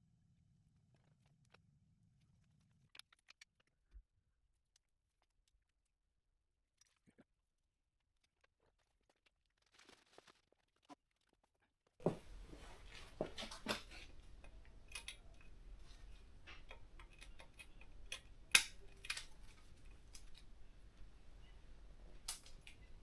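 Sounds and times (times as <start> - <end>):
hand tools clicking and knocking: 12.0 - 23.0
low steady hum: 12.0 - 23.0.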